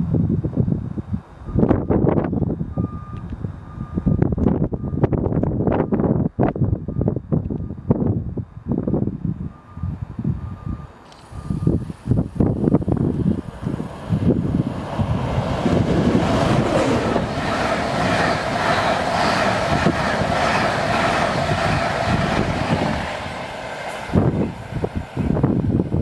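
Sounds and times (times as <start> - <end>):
wind buffeting microphone: 0.0 - 26.0
train passing at speed: 11.1 - 26.0.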